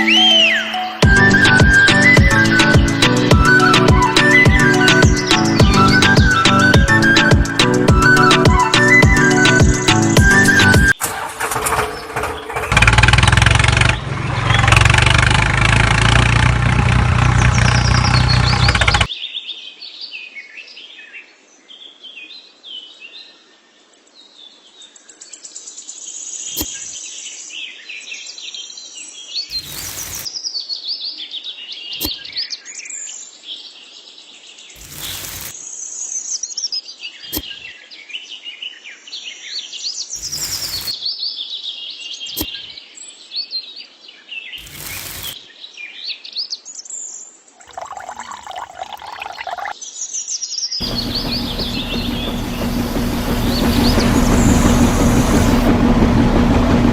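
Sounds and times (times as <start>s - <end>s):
small birds chirping: 17.2s - 20.3s, 24.3s - 55.7s
loud dense sound: 50.8s - 56.9s.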